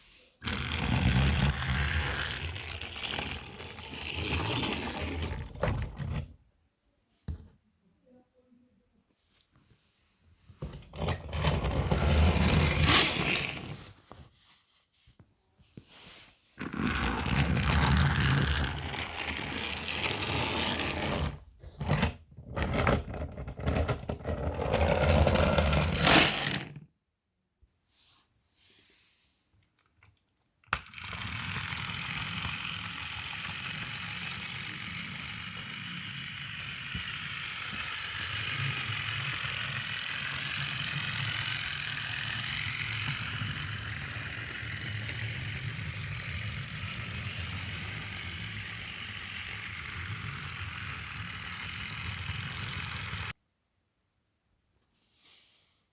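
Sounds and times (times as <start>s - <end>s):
toy train wheels rattling: 0.4s - 6.3s, 11.0s - 13.8s, 16.7s - 26.7s, 30.8s - 53.4s.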